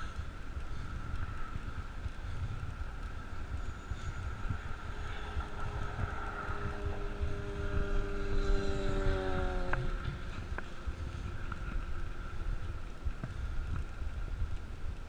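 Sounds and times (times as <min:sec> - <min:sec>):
vehicle engine hum passing: 0:00.0 - 0:15.0
wind rushing over microphone: 0:00.0 - 0:15.0.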